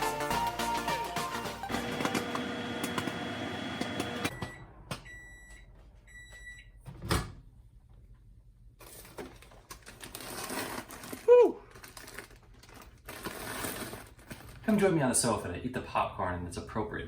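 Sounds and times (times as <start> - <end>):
background music: 0.0 - 2.3
microwave oven beeping: 1.6 - 6.8.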